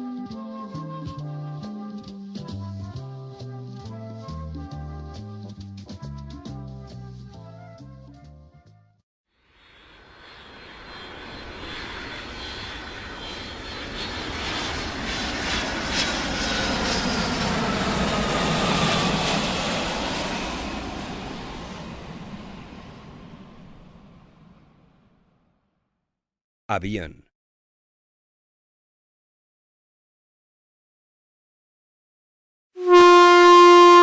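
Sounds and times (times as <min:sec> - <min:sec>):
airplane flying past: 0:09.6 - 0:25.2.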